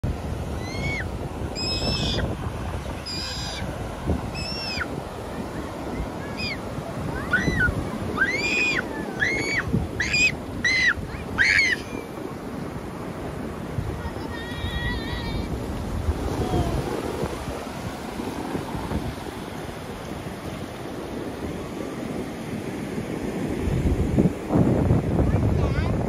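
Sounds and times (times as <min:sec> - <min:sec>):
surf: 0:00.0 - 0:26.0
wind: 0:00.0 - 0:26.0
bird calling: 0:01.6 - 0:02.2, 0:03.0 - 0:03.7, 0:04.3 - 0:04.9, 0:06.0 - 0:06.6, 0:07.2 - 0:12.0.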